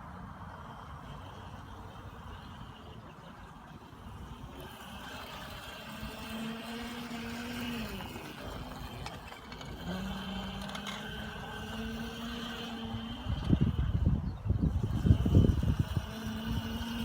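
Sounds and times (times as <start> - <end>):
low motor whine: 0.0 - 17.0
toy motorcycle motor whirring: 0.1 - 17.0.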